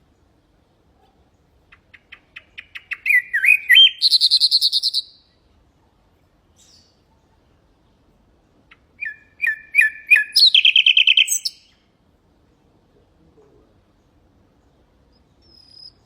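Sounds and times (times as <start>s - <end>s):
nightingale singing: 1.3s - 5.4s, 6.5s - 7.1s, 8.6s - 11.9s, 13.9s - 16.0s.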